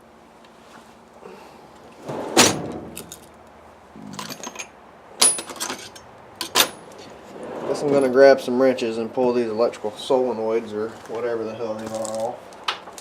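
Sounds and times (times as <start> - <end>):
metal tools clanking on workbench: 4.0 - 7.2.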